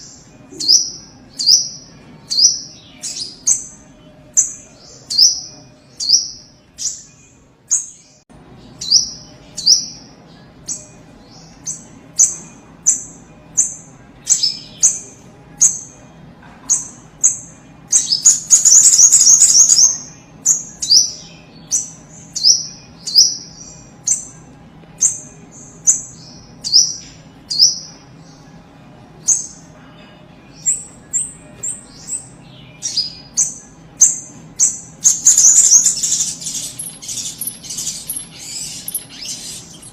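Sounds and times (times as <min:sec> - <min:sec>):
bird chattering trill: 0:32.9 - 0:39.9.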